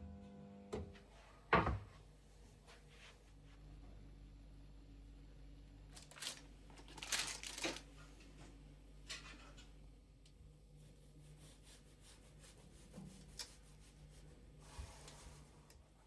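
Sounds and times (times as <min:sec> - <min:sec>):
rustling crinkling handling noises: 0:05.9 - 0:09.6.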